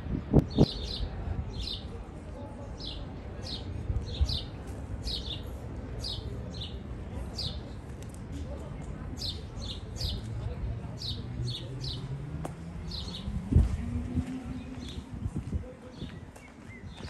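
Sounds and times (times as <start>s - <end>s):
songbird chirping: 9.1s - 17.0s.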